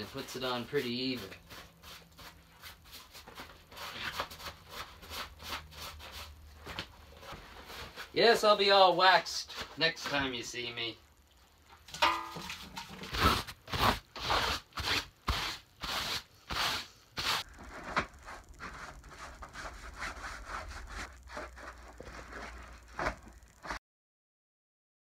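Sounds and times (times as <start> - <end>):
rubbing or scraping strokes: 0.0 - 8.5, 12.4 - 23.8.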